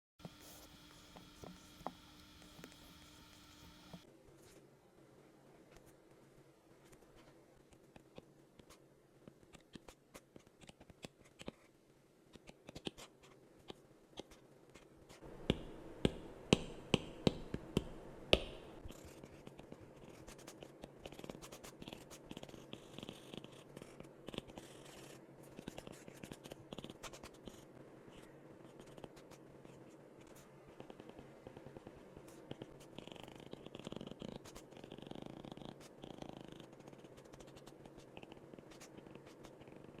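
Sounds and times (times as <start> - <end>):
pen tapping: 15.4 - 18.6
pen scratching: 18.8 - 40.0.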